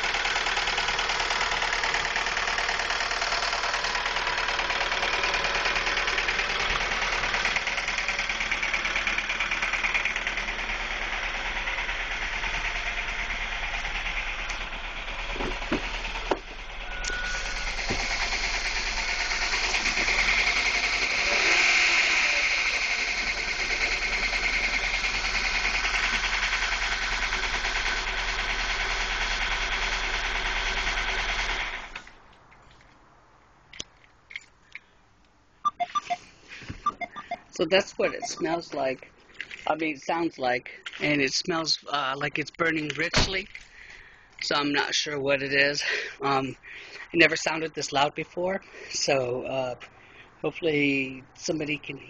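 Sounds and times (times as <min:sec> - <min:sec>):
rapid clanging engine knock: 0:00.0 - 0:16.8, 0:17.4 - 0:31.9
car engine idling: 0:00.0 - 0:32.2, 0:35.7 - 0:41.2.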